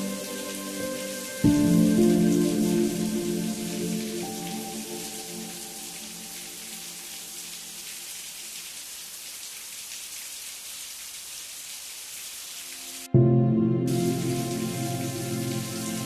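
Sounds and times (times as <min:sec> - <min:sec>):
held music chord: 0:00.0 - 0:06.6, 0:13.1 - 0:16.0
rain hiss: 0:00.0 - 0:13.1, 0:13.9 - 0:16.0.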